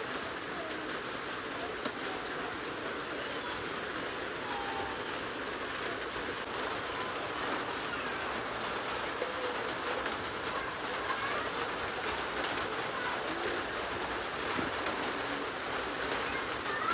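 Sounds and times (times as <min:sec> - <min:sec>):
rain hissing: 0:00.0 - 0:16.9.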